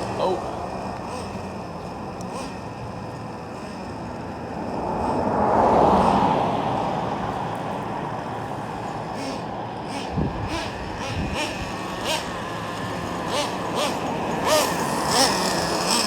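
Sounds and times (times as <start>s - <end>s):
vehicle passing by: 3.5s - 16.0s.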